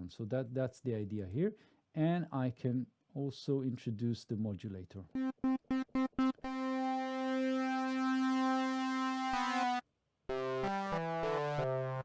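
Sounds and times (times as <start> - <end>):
buzzy synthesizer note: 5.2 - 12.0
synthesizer notes stepping down: 5.2 - 12.0.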